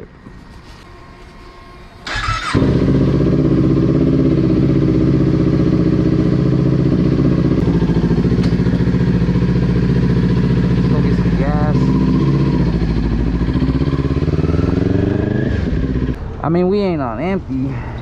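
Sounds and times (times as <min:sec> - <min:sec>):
starter motor whir: 0:01.9 - 0:03.0
motorcycle engine idling: 0:02.0 - 0:16.1.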